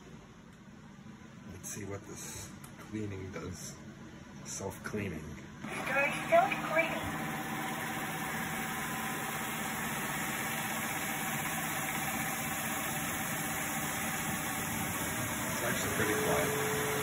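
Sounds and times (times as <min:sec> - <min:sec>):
floor cleaner motor hum: 0:05.6 - 0:17.0.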